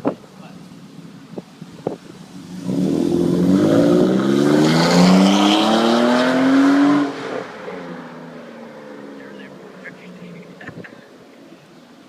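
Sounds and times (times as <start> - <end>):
car exhaust accelerating hard: 0.8 - 9.1.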